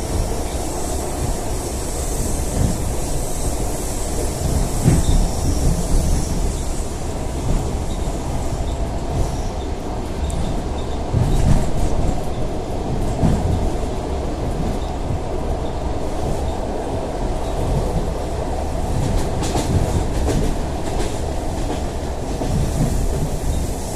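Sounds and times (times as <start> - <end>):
train wheels rumbling on rail: 0.0 - 23.9.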